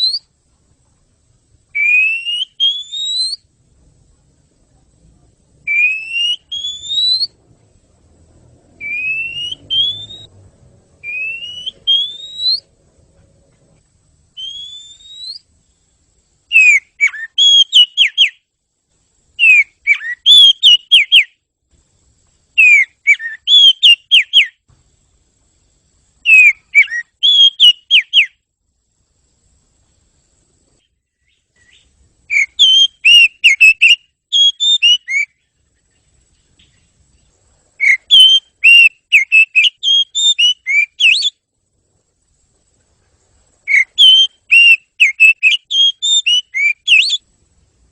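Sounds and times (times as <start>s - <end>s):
bird rising whistles: 0.0s - 0.3s, 1.8s - 3.5s, 5.7s - 7.4s, 8.8s - 10.3s, 11.0s - 12.7s, 14.4s - 15.5s, 16.5s - 18.4s, 19.4s - 21.3s, 22.6s - 24.6s, 26.2s - 28.4s, 31.2s - 35.4s, 37.8s - 41.4s, 43.7s - 47.3s.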